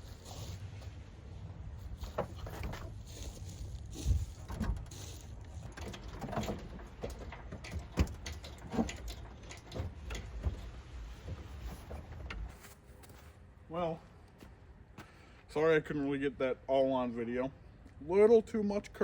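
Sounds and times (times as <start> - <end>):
metal knocks and scraping: 1.9 - 12.6.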